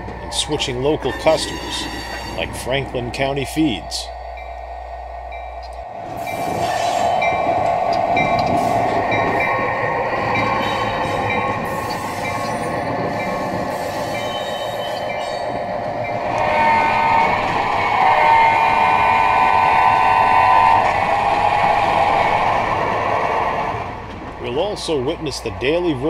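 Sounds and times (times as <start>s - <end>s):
train engine and rail noise: 0.0s - 26.0s
train horn: 16.2s - 21.2s.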